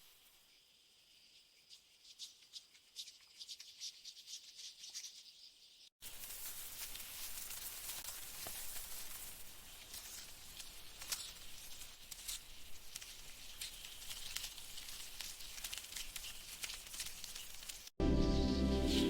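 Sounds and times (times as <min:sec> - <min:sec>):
crackles and ticks: 0:06.0 - 0:18.0.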